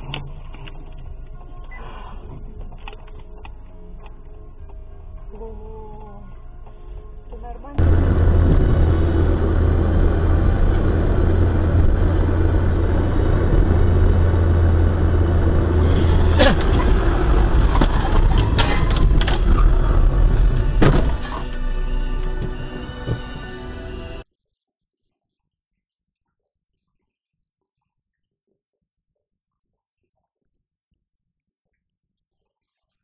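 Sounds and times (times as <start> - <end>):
vehicle engine droning: 7.8 - 24.2.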